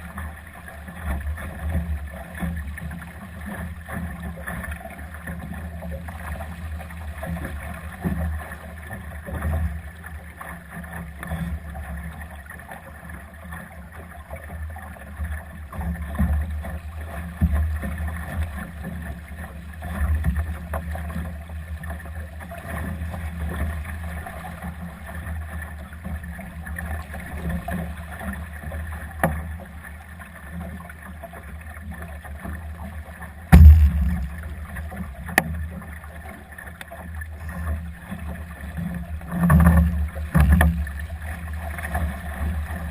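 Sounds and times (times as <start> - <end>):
water washing along hull: 0.0 - 42.9
loud knock: 33.6 - 35.2.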